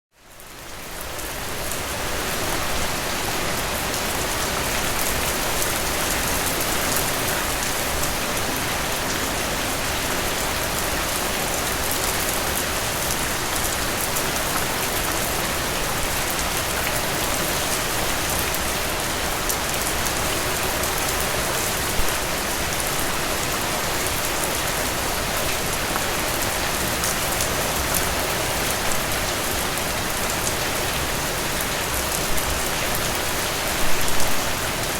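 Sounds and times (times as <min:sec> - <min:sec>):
steady rain falling: 0:00.2 - 0:34.9.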